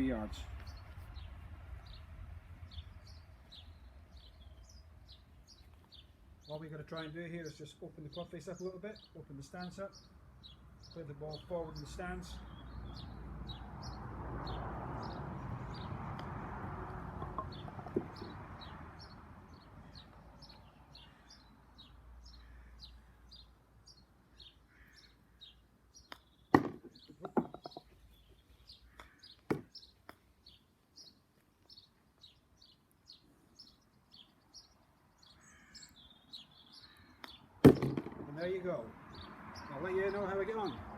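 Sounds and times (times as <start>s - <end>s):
small birds chirping: 0.0s - 40.9s
golf club striking ball: 17.2s - 18.4s, 37.2s - 38.2s
ball knocking in wash basin: 26.6s - 27.8s.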